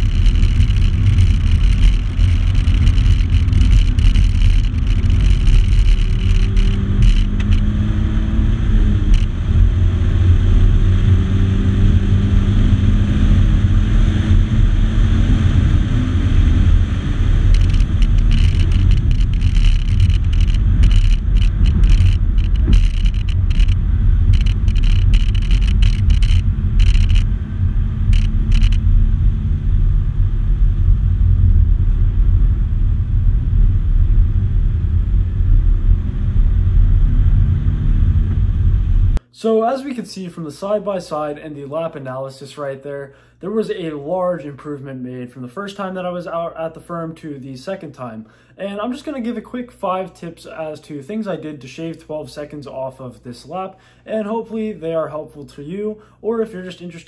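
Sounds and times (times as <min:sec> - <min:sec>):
car engine at speed: 0:00.0 - 0:39.2
road and wind rumble: 0:00.0 - 0:39.2.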